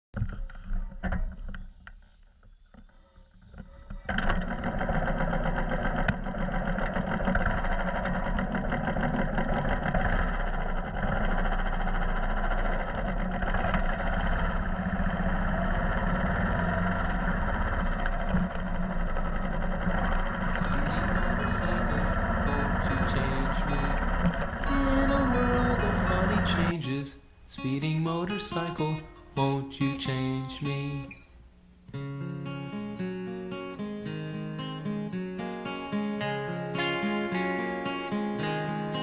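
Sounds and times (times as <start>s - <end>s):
motorcycle engine starting: 3.5s - 27.0s
starter clicks: 17.0s - 26.8s.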